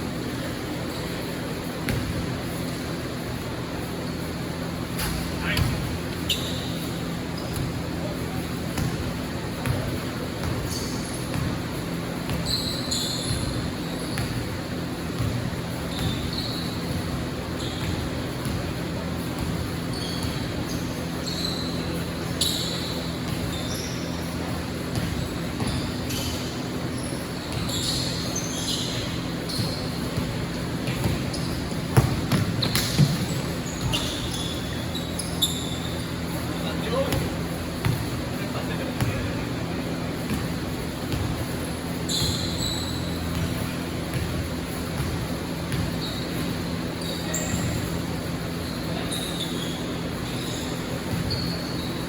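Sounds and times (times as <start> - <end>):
sneaker squeaks: 0.0 - 52.0
basketball bouncing: 1.9 - 2.6, 5.0 - 6.6, 8.4 - 12.5, 14.2 - 20.6, 24.3 - 26.2, 28.8 - 34.6, 36.2 - 38.3, 39.0 - 39.3, 40.2 - 46.6.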